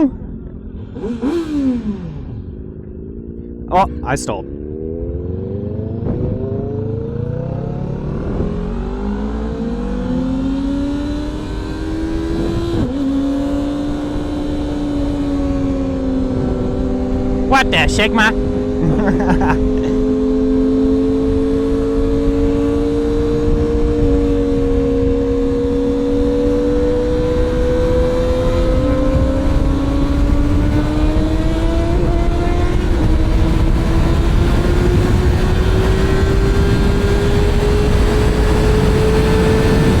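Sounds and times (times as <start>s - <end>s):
wind rumble on microphone: 5.1s - 17.5s, 20.6s - 40.0s.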